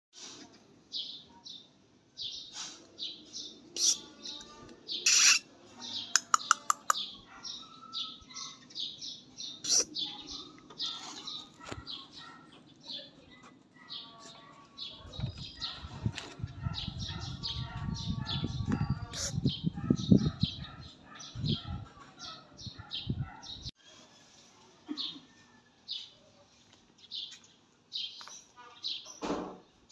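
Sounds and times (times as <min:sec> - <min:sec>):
small birds chirping: 0:00.9 - 0:29.9
sharp clicks: 0:06.2 - 0:07.1.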